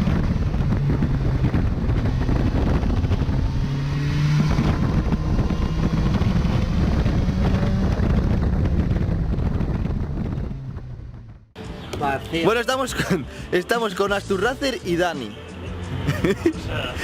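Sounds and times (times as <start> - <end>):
wind noise on microphone: 0.0 - 12.2.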